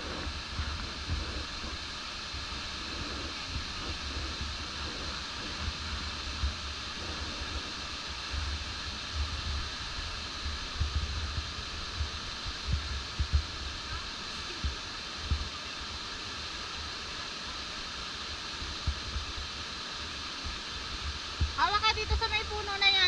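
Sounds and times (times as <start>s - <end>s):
low thumps on microphone: 0.0s - 1.8s, 9.2s - 13.8s
stream water over rocks: 0.0s - 23.0s.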